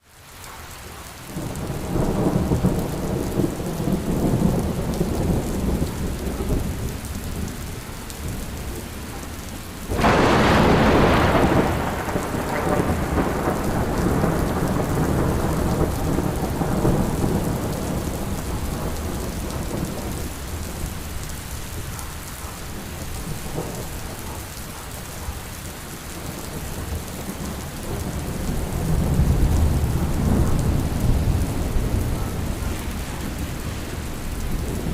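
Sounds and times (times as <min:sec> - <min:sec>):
steady rain: 0:00.0 - 0:34.9
rolling thunder: 0:01.3 - 0:34.9
sudden thunderclap: 0:09.9 - 0:20.1.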